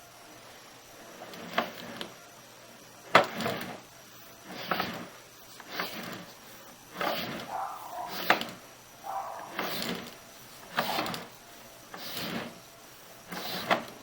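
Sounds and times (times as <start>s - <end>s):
cable scraping swish with clicks: 7.0s - 11.3s.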